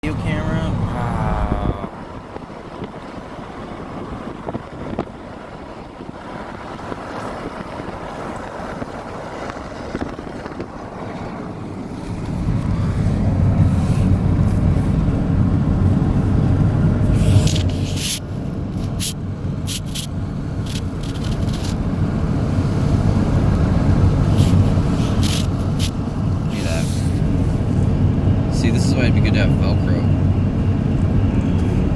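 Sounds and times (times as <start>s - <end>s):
road rumble: 0.0s - 31.9s
wind buffeting microphone: 0.0s - 31.9s
sharp crackles: 17.1s - 21.9s, 24.2s - 27.2s.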